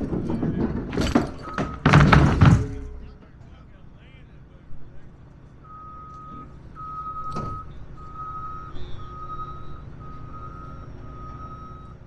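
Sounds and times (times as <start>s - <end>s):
diesel engine running: 0.0s - 12.0s
backup alarm beeping: 1.0s - 2.4s, 5.6s - 12.0s.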